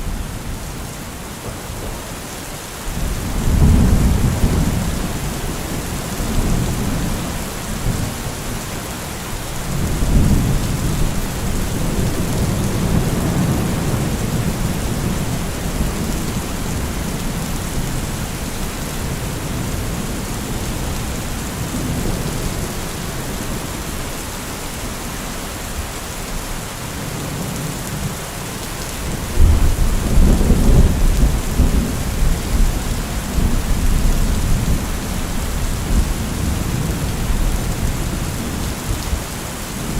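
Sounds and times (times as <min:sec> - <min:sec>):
heavy rain: 0:00.0 - 0:39.9
rolling thunder: 0:02.9 - 0:08.3, 0:29.2 - 0:39.2.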